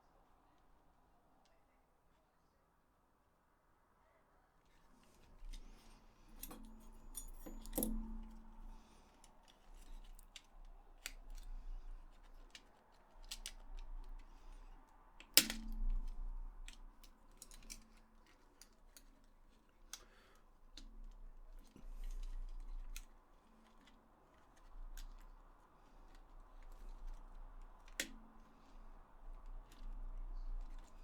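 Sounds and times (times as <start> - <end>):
plastic parts and tools clicking: 9.2 - 14.3.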